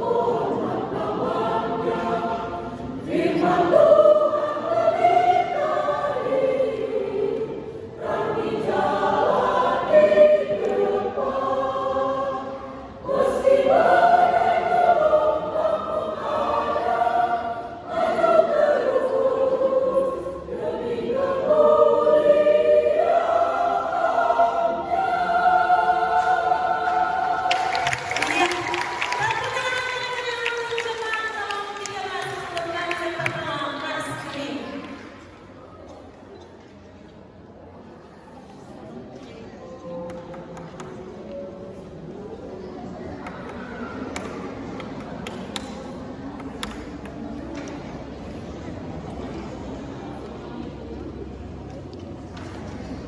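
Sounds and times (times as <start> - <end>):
church choir singing: 0.0 - 29.4.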